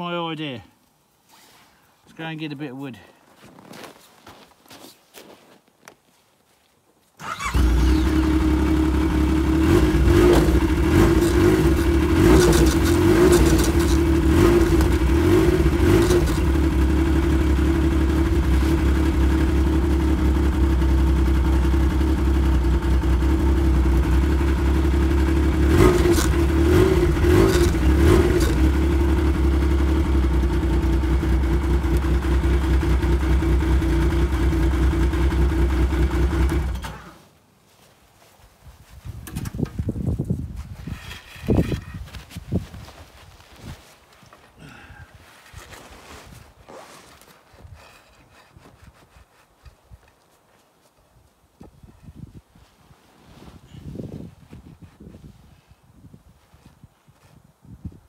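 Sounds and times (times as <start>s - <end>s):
engine running steadily: 7.3s - 37.2s.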